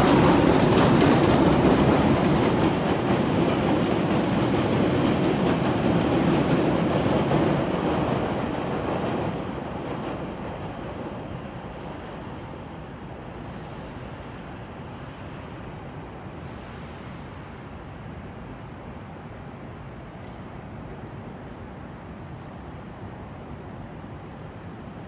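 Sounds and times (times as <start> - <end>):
train wheels clattering on tracks: 0.0 - 12.6.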